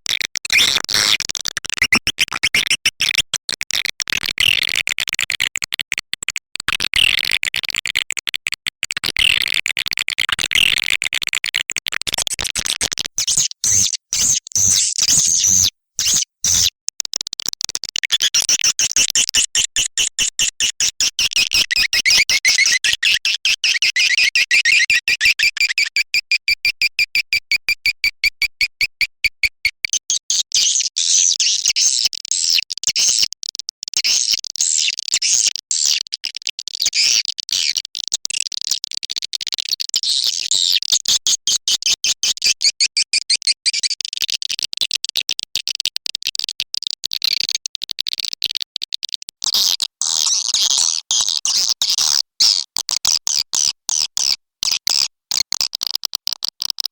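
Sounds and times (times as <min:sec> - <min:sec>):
swiftlet chirps and twittering: 0:13.2 - 0:16.7.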